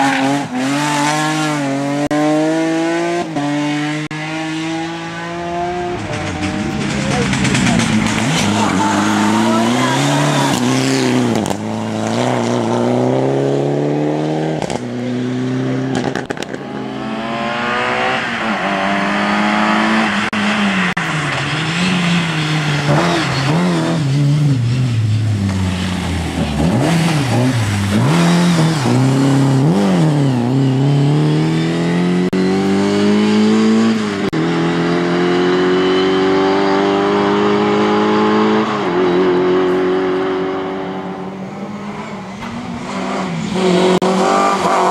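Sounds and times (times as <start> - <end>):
rally car engine revving hard: 0.0 - 44.9.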